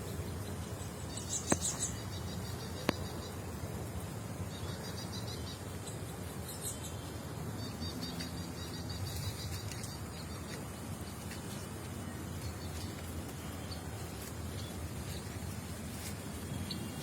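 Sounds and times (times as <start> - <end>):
small bird chirping: 0.0 - 3.6.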